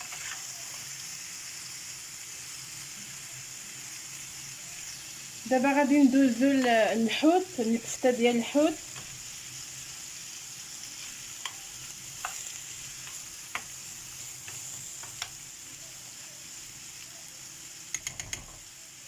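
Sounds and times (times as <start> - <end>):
oil sizzling in a pot: 0.0 - 19.0
utensils clicking: 17.9 - 18.6.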